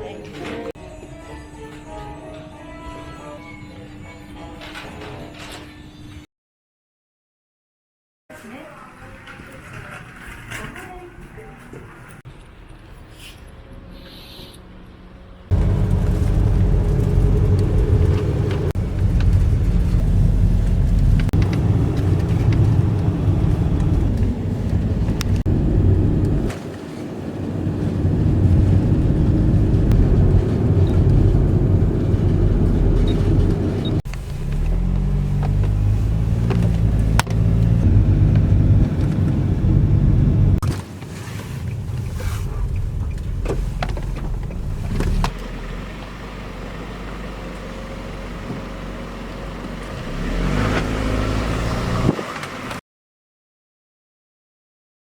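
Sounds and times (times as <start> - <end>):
road noise: 12.0 - 52.8
car engine: 15.5 - 52.8.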